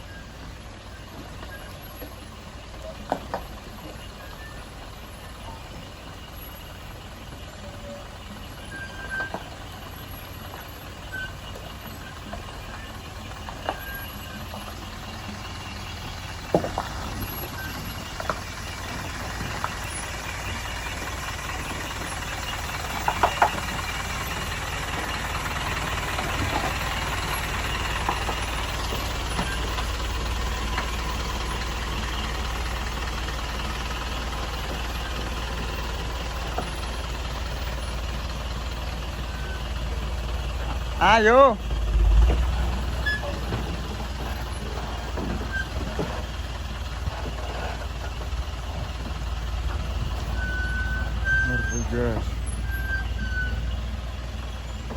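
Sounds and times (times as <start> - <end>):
diesel truck engine running: 0.0 - 54.9
sharp clicks and knocks: 22.8 - 24.0.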